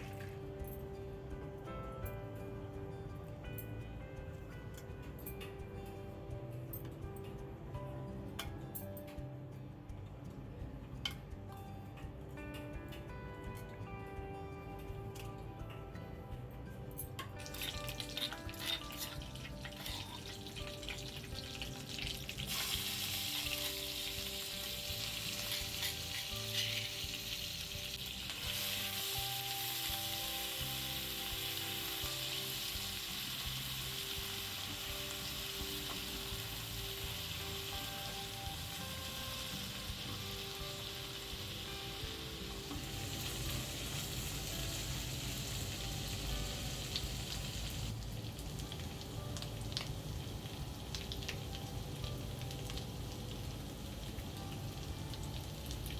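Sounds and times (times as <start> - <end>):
food sizzling in hot oil: 0.0 - 0.6, 17.2 - 55.9.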